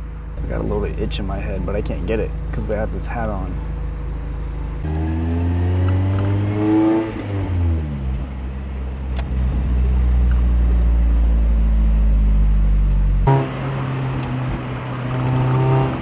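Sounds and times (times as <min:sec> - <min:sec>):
car engine revving: 0:04.3 - 0:16.0.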